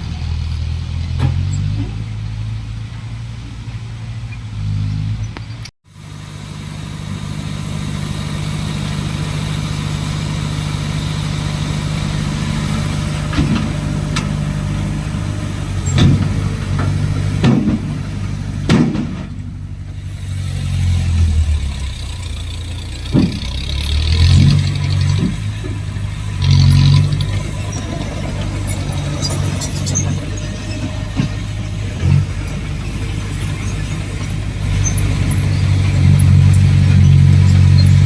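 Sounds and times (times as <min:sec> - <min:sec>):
diesel engine revving: 0:00.0 - 0:38.0
metal clanks and knocks: 0:13.0 - 0:20.1, 0:22.8 - 0:38.0.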